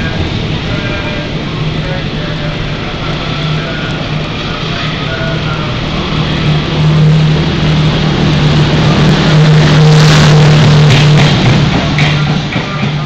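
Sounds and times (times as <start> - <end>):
train wheels rushing on rail: 0.0 - 13.0
wheels clicking over rail joints: 10.8 - 13.0.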